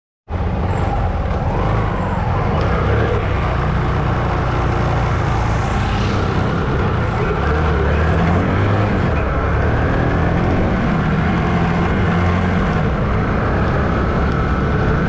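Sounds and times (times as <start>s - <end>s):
motorcycle engine: 0.3s - 15.0s
road noise: 0.3s - 15.0s
street traffic: 0.3s - 15.0s.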